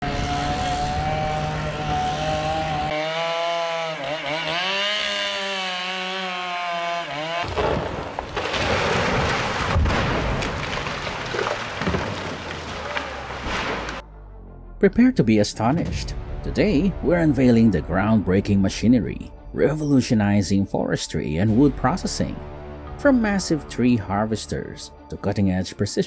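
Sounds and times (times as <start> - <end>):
noisy cutting machinery: 0.0 - 7.4
chainsaw engine revving: 0.0 - 7.8.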